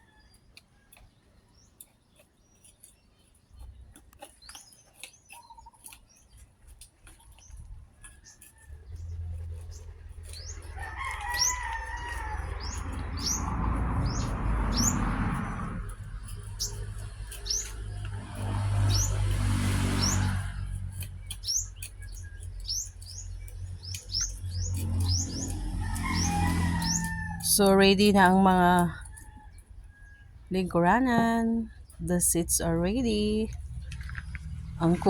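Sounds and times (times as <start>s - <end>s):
small birds chirping: 0.0s - 35.0s
low rumble: 12.2s - 35.0s.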